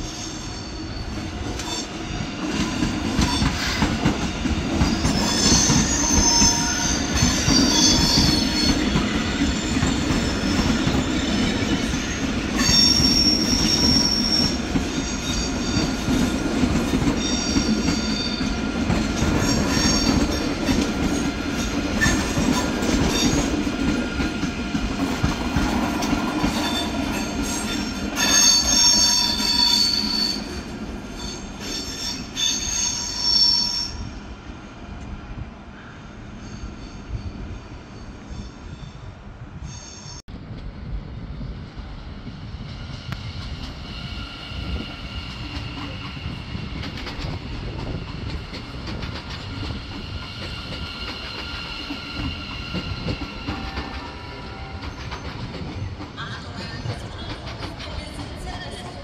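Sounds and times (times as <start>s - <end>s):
train wheels rumbling on rails: 0.0s - 59.0s
high-pitched wheel squeal: 4.8s - 8.8s, 26.6s - 30.6s, 31.2s - 34.1s.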